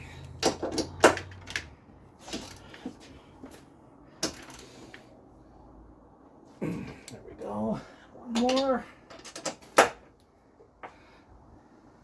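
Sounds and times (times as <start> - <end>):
hand tools clinking on bolts: 8.3 - 9.9.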